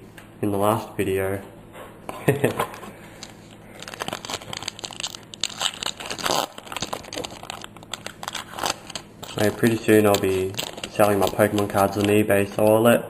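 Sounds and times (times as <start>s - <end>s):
foil wrapper crinkling and tearing: 3.2s - 12.6s.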